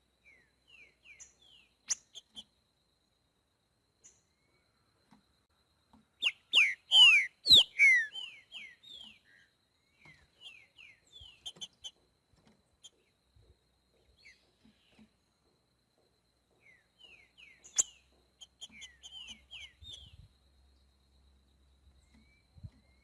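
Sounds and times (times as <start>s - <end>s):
bird singing whistled notes: 0.2s - 2.5s, 6.2s - 12.0s, 16.6s - 20.4s, 22.0s - 23.0s.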